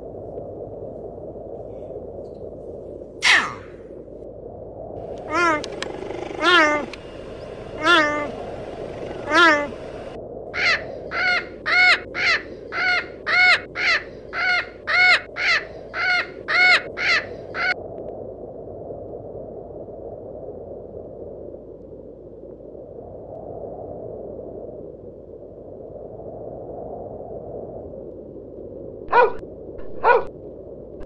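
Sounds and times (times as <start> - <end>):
low background hum: 5.0 - 17.8
bird harsh caw-like calls: 5.2 - 17.8.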